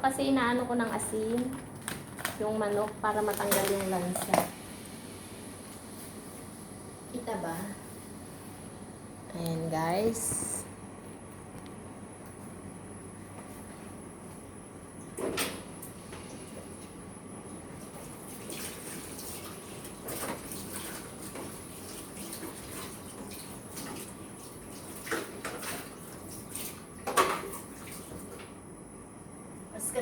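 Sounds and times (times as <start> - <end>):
water sloshing in a basin: 17.8 - 28.4.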